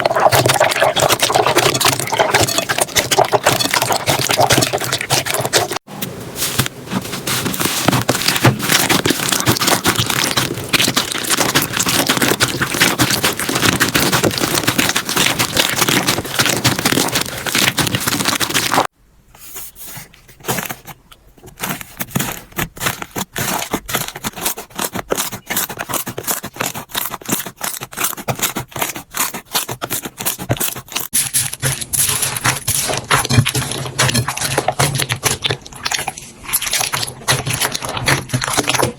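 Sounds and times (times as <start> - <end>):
slime crackling and popping: 0.0 - 5.8, 7.3 - 18.9.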